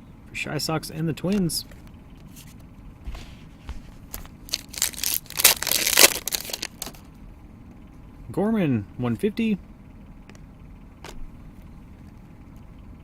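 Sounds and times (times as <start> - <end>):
foil wrapper tearing and crinkling: 4.0 - 7.1.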